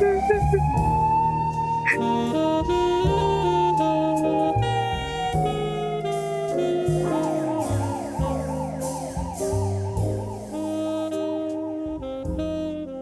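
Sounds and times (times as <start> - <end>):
emergency vehicle siren: 0.0 - 5.2
instrumental background music: 0.0 - 13.0.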